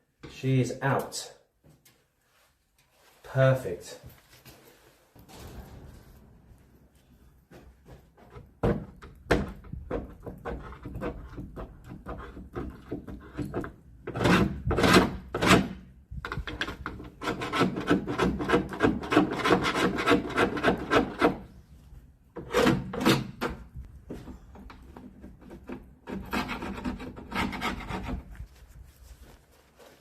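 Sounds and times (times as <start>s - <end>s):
hand tool scraping window putty: 8.2s - 21.5s, 22.4s - 23.6s, 25.0s - 28.4s.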